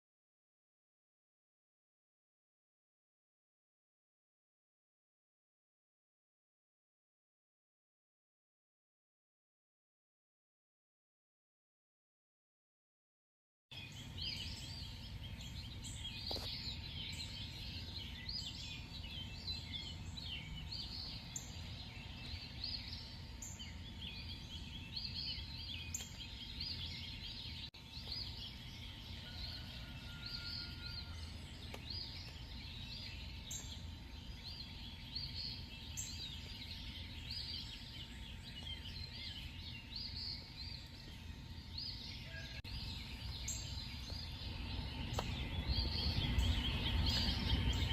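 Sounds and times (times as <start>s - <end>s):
steady low rumble: 42.6s - 47.9s.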